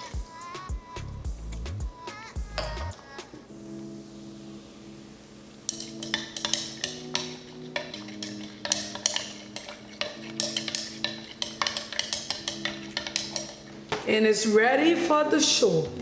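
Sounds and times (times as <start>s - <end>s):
soft background music: 0.0s - 16.0s
utensil scraping a container: 5.7s - 13.8s.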